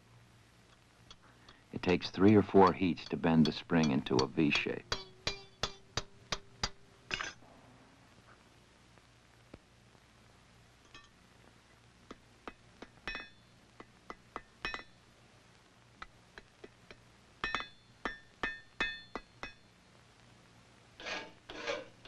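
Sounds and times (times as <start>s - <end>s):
hammer blows on an anvil: 2.2s - 7.3s
rasping file strokes: 21.0s - 22.0s.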